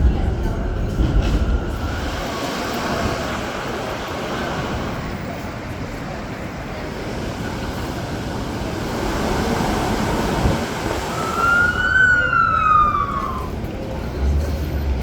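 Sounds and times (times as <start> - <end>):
city street rumble: 0.0 - 15.0
emergency vehicle siren wailing: 9.8 - 13.7.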